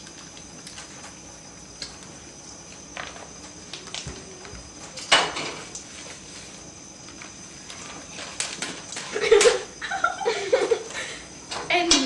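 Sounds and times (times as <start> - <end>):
kitchen clatter: 4.9 - 5.7.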